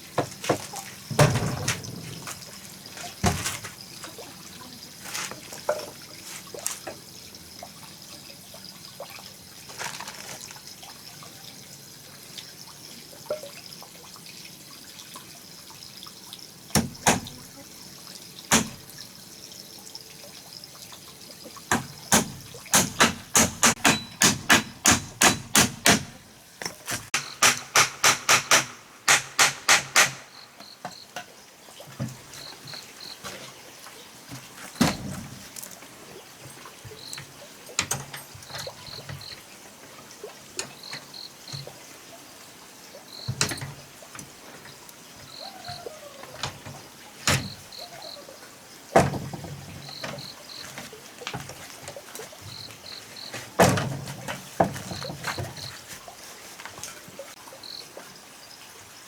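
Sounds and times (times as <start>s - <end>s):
sharp knocks: 21.7s - 26.2s, 27.2s - 30.3s.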